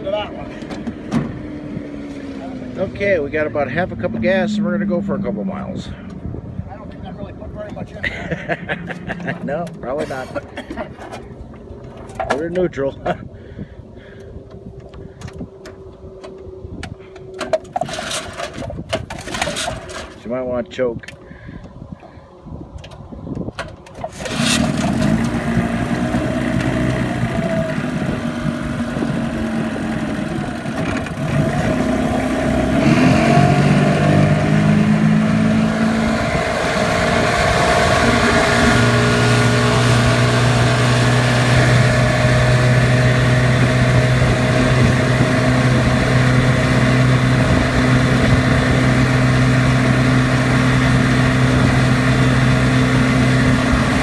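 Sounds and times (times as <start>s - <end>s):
outboard motor running: 23.9s - 54.0s.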